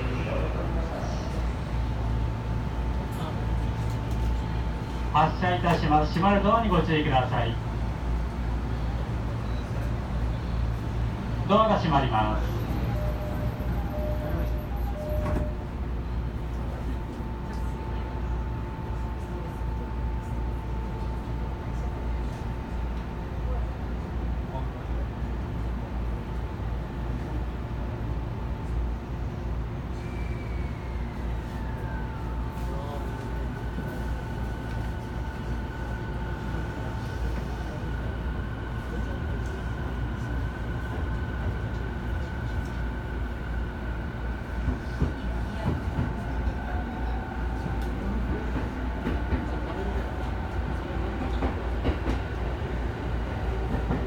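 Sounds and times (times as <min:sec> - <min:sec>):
train running gear rumble: 0:12.4 - 0:54.0
rail-joint clicks: 0:13.3 - 0:15.6.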